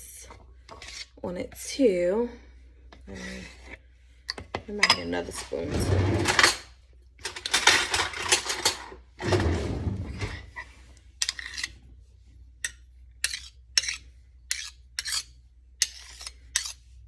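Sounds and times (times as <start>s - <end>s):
spoon scraping a tub: 0.2s - 1.2s, 9.4s - 11.8s.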